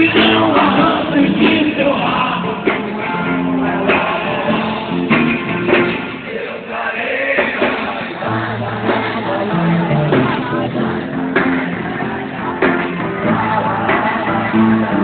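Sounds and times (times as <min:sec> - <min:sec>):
guitar: 0:00.0 - 0:15.0
person singing: 0:00.0 - 0:15.0.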